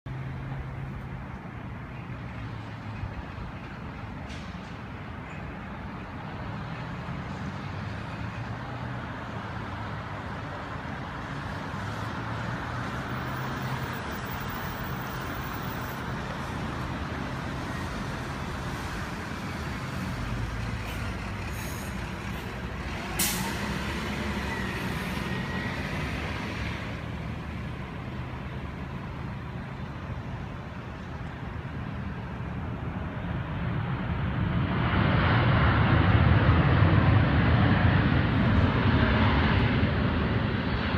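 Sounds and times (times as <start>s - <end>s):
jet engines running: 9.6s - 40.9s.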